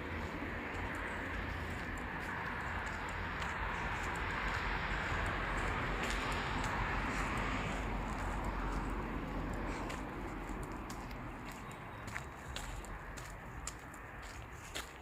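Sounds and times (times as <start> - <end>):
rushing outdoor noise: 0.0 - 15.0.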